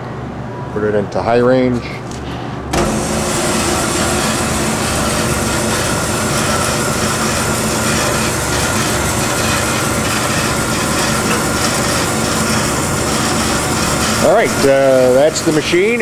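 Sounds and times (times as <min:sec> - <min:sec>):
band saw running idle: 0:02.7 - 0:16.0.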